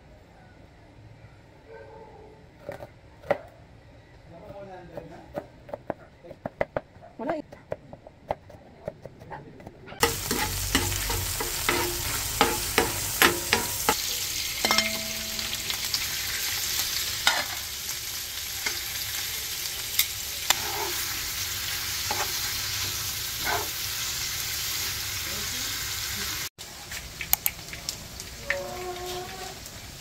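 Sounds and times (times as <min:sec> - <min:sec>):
food sizzling in a pan: 0:10.0 - 0:30.0.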